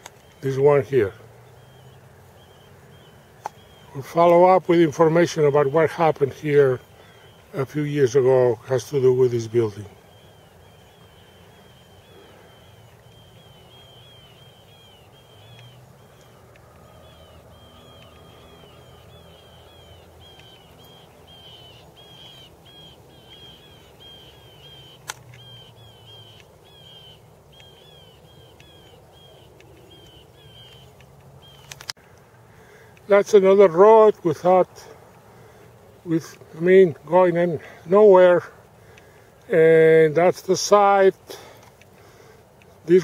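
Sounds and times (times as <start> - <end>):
bird chirping: 0.0 - 43.0
sharp click: 29.6 - 32.0.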